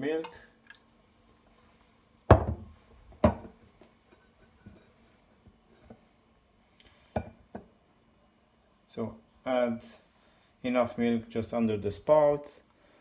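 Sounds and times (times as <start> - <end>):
milk jug knocks and clinks: 2.3 - 3.6.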